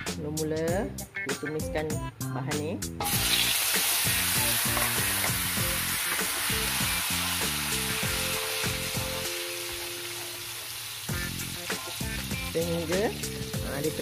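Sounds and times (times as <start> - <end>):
paste sizzling in hot oil: 3.0 - 14.0.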